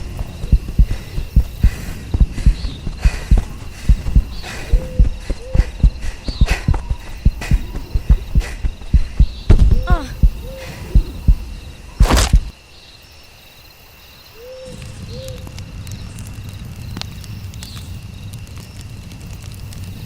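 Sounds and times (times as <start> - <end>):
owl hooting: 0.0 - 11.7
heartbeat-like thumping: 0.0 - 12.5
campfire crackling: 0.0 - 20.0
crickets chirping: 0.0 - 20.0.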